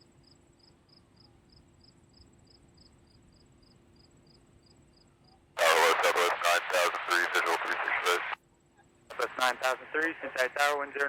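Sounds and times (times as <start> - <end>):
crickets chirping: 0.1 - 5.1
air traffic control radio voice: 5.6 - 8.4, 9.1 - 11.0
low steady hum: 5.6 - 11.0.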